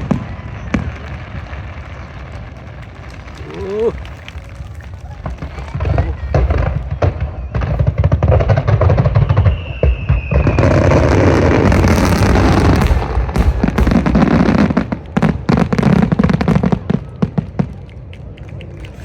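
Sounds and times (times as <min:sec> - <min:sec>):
rapid sharp firework bangs: 0:00.0 - 0:17.7
fireworks booming: 0:00.0 - 0:17.9
fireworks crackling: 0:00.0 - 0:19.0
firework whistle: 0:06.4 - 0:14.8.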